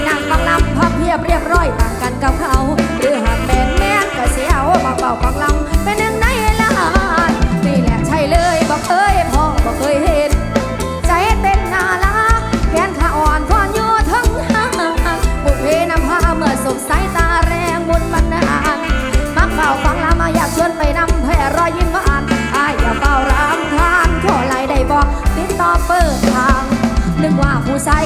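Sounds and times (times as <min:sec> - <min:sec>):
live band music with driving beat: 0:00.0 - 0:28.0.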